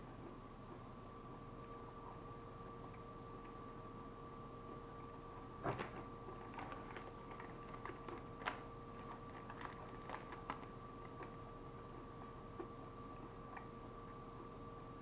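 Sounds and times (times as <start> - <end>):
crunchy chewing: 5.6 - 12.1
wrapper handled: 5.7 - 11.3.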